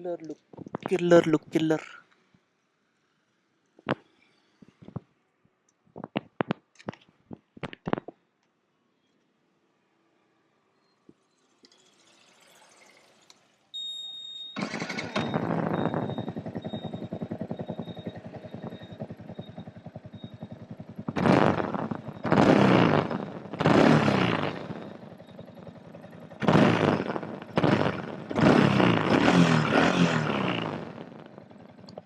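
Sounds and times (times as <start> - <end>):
motorcycle engine idling and revving: 10.3 - 13.8, 14.6 - 32.0.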